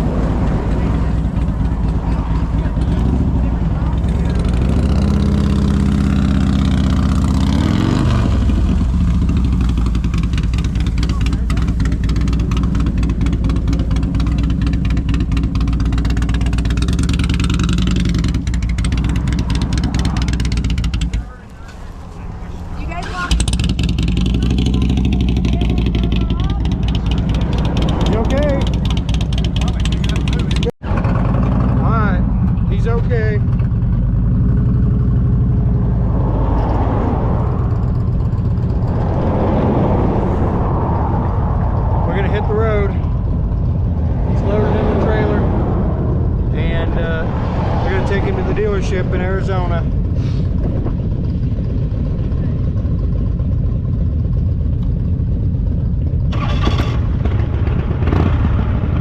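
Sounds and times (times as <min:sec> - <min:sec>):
wind rushing: 0:00.0 - 0:05.2, 0:15.3 - 0:30.7, 0:34.0 - 0:52.4
motorcycle engine running: 0:00.0 - 0:39.5, 0:48.2 - 0:59.0.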